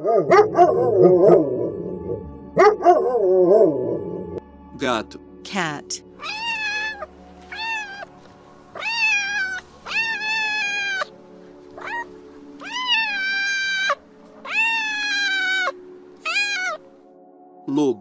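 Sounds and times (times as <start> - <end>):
cat meowing: 6.2 - 8.1, 8.7 - 11.1, 11.8 - 16.8.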